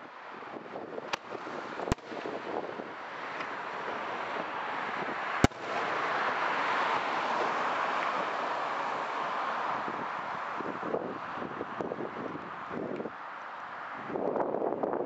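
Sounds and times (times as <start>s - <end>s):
rushing background noise: 0.0s - 15.0s
firework shells bursting: 1.1s - 4.4s.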